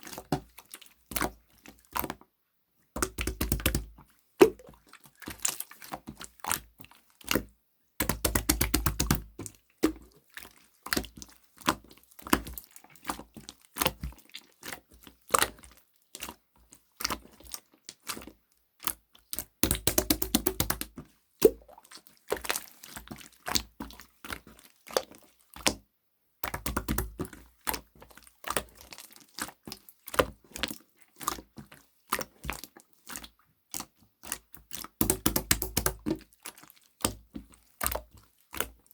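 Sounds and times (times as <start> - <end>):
slime squished by hand: 3.0 - 6.4, 8.0 - 11.2, 19.4 - 25.7, 34.7 - 38.7.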